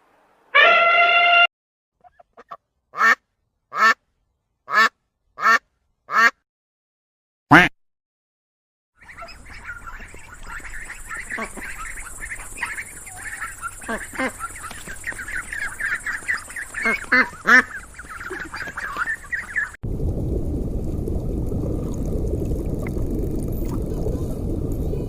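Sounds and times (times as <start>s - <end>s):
duck quacking: 0.6s - 4.0s, 4.7s - 6.4s, 7.5s - 7.7s, 9.0s - 19.8s
flock of ducks quacking: 9.0s - 19.8s.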